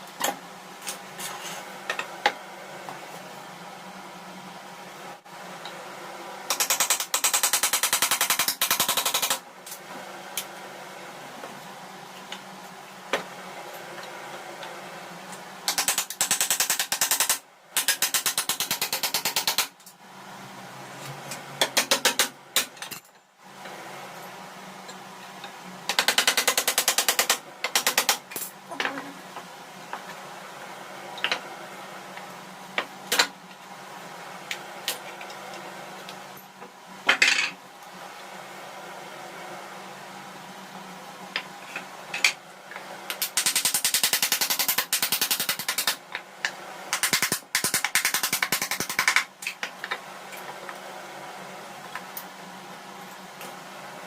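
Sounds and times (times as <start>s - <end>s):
rapid mechanical clicking: 15.7s - 19.9s, 25.9s - 28.4s, 46.9s - 49.5s.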